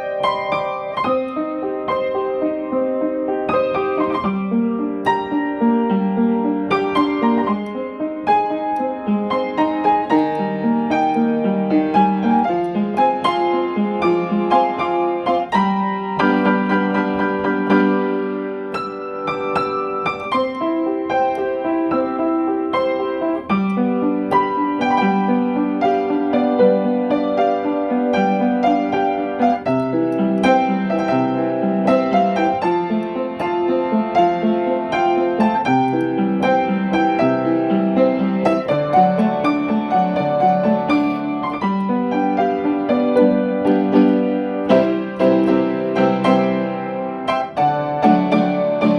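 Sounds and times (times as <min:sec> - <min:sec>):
solo piano music: 0:00.0 - 0:48.9.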